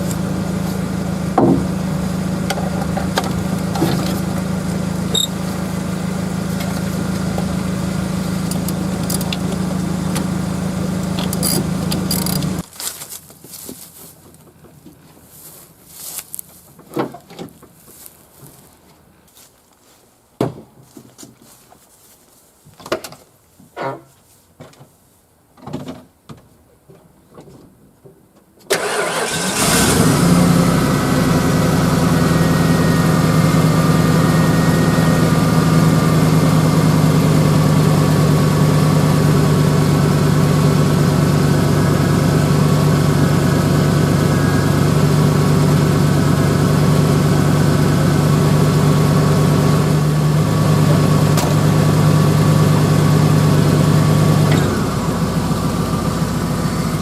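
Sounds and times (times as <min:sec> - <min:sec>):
truck engine starting and idling: 0:00.0 - 0:12.7, 0:28.7 - 0:57.0.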